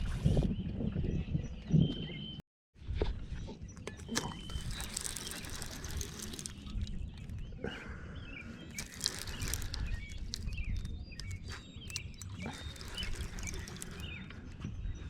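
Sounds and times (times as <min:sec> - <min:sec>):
birds chirping: 0:03.6 - 0:15.0.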